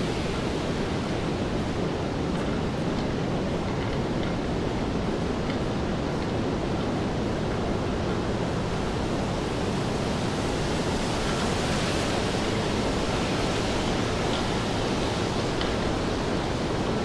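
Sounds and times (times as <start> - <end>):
rain falling on street: 8.2 - 17.0.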